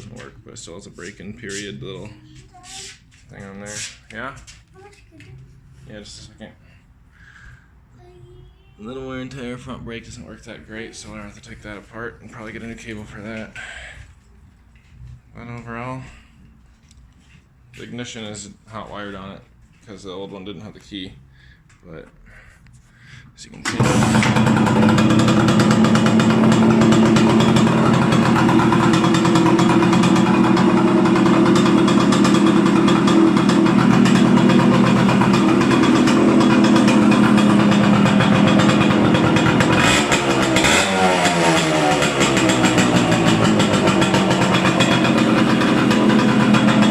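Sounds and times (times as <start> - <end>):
two-stroke motorcycle engine running: 23.7 - 46.9.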